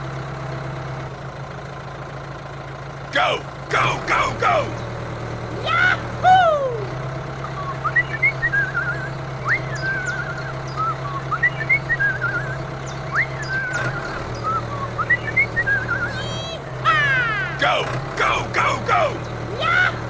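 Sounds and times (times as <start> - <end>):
low engine drone: 0.0 - 20.0
high warbling whistle-like call: 7.5 - 16.4.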